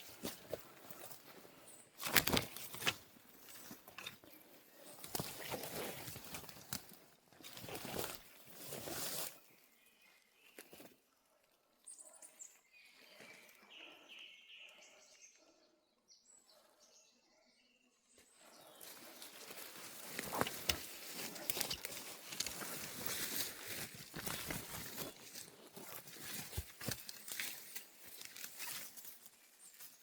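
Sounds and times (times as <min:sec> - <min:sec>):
leaves rustling under footsteps: 0:04.7 - 0:09.5, 0:18.8 - 0:30.0.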